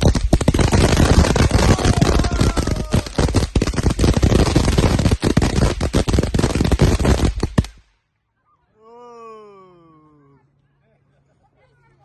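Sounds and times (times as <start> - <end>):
fireworks pops and crackles: 0.0 - 8.0.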